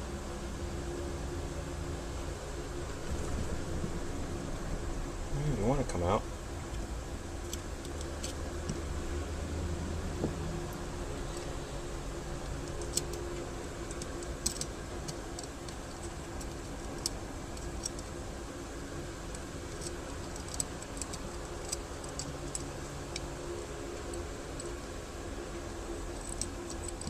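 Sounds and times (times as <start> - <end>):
steady low hum: 0.0 - 27.0
metal parts clicking and tapping: 7.4 - 8.8, 12.4 - 18.2, 19.3 - 23.3, 24.0 - 24.8, 25.6 - 27.0.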